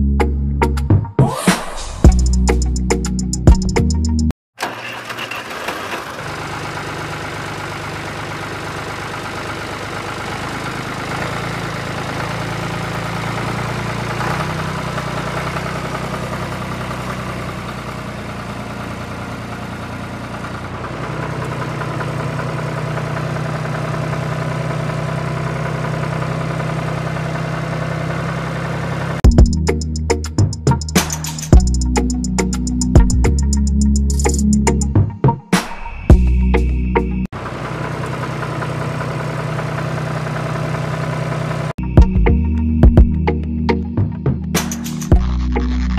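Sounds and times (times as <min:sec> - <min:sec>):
diesel tractor engine idling: 0:04.6 - 0:30.7, 0:37.2 - 0:41.8.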